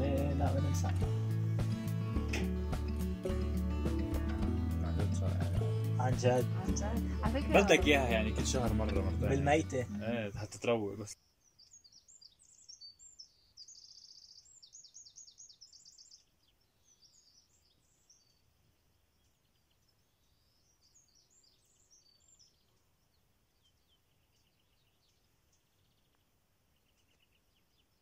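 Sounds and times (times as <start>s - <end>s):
birds singing faintly: 0.0s - 28.0s.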